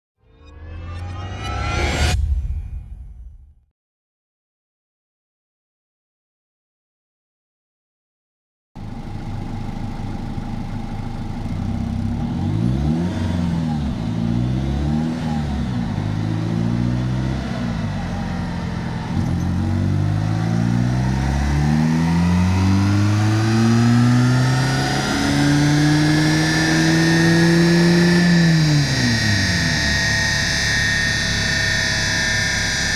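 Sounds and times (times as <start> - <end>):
diesel engine revving: 8.8 - 32.9.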